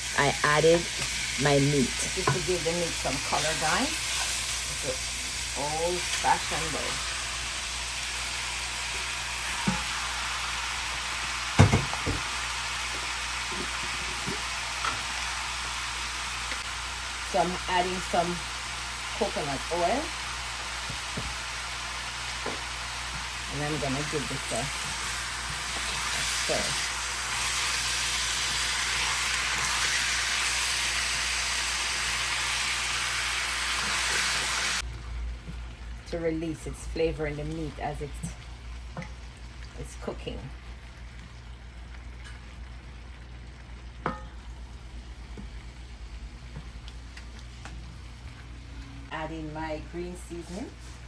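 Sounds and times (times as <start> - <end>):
chicken sizzling in a saucepan: 0.0 - 51.0.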